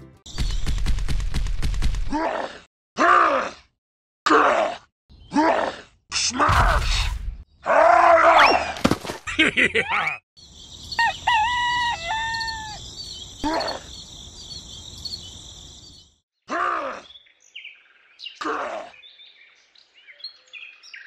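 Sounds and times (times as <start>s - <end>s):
person groaning and grunting: 2.1s - 7.1s, 16.5s - 17.0s
birds chirping: 10.0s - 16.2s
rooster crowing: 10.9s - 13.0s.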